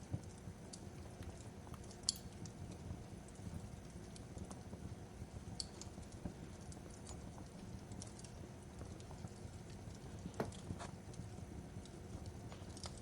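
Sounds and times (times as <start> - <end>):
fireplace crackling and popping: 0.0 - 13.0.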